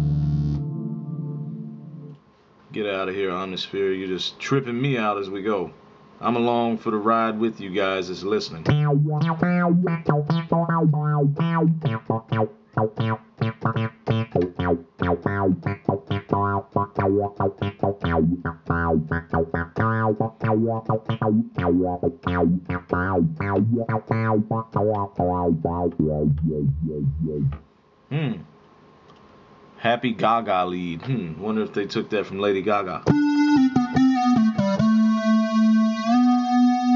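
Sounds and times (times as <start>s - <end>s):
low synth bass notes: 0.0s - 1.4s, 8.7s - 27.6s, 33.1s - 36.9s
plucky synth lead notes: 0.0s - 2.2s, 8.7s - 27.6s, 33.1s - 36.9s.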